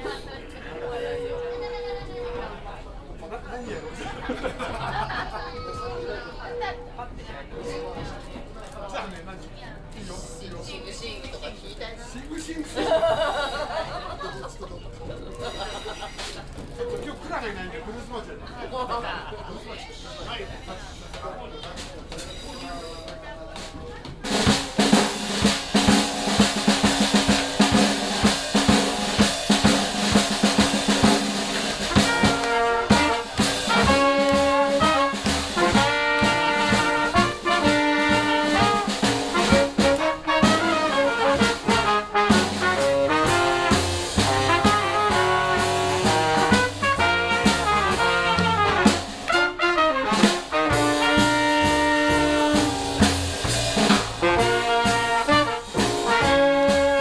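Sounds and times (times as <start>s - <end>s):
jazz band playing: 23.5s - 57.0s.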